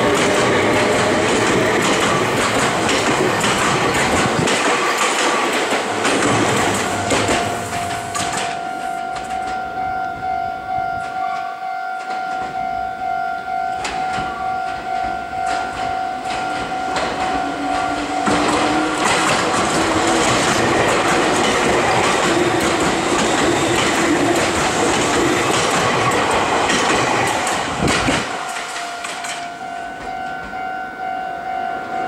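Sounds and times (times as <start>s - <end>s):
electric train rushing past: 0.0s - 11.4s, 12.0s - 32.0s
steady ringing tone: 5.8s - 25.5s, 28.3s - 32.0s.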